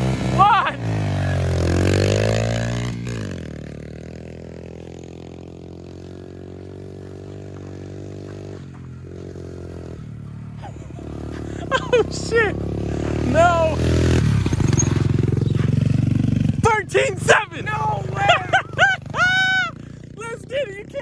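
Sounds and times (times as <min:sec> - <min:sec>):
pit bike engine revving: 0:00.0 - 0:21.0.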